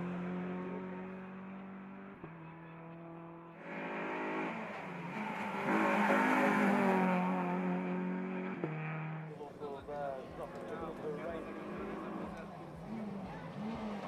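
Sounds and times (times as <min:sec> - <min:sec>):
race car engine passing: 0:00.0 - 0:14.0.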